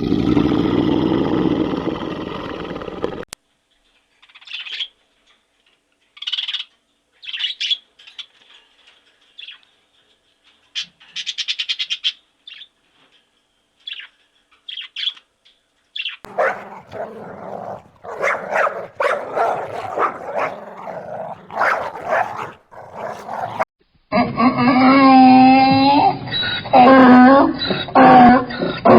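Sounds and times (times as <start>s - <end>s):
dog barking: 16.3s - 23.6s
dog yelping: 16.3s - 23.6s.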